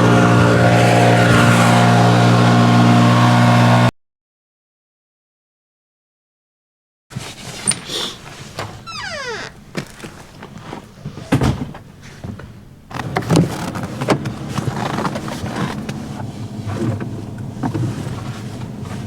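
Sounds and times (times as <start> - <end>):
vehicle running with low hum: 0.0 - 3.9, 13.6 - 19.0.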